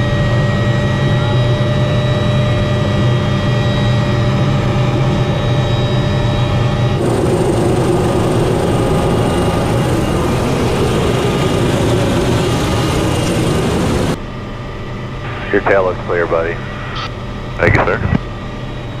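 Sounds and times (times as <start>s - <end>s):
helicopter engine and rotor drone: 0.0s - 19.0s.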